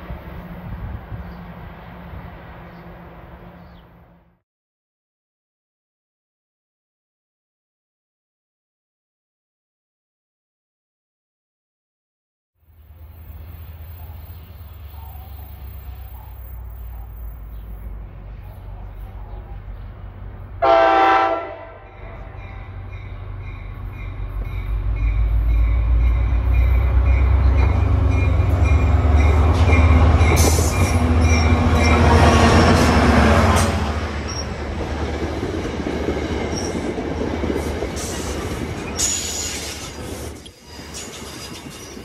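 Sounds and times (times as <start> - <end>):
locomotive engine rumble: 12.8 - 42.0
train horn blast: 20.6 - 23.2
clattering train wheels: 22.4 - 42.0
high wheel squeal: 34.2 - 34.6, 38.0 - 42.0.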